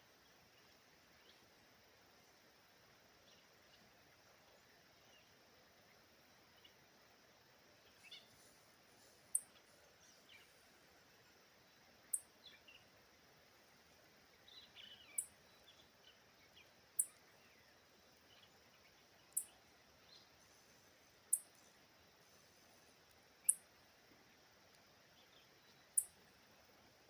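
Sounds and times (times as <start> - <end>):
faint bird calls: 7.8 - 11.4.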